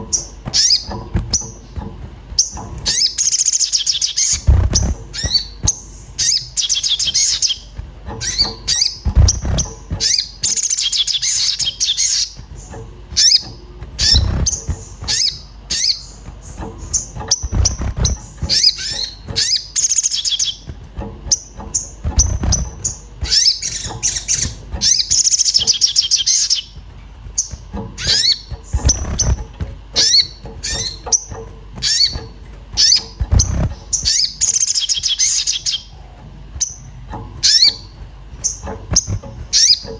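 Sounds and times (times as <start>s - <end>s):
bird chirping rapidly: 0.0s - 20.7s, 21.3s - 39.9s
low thuds: 4.4s - 6.2s.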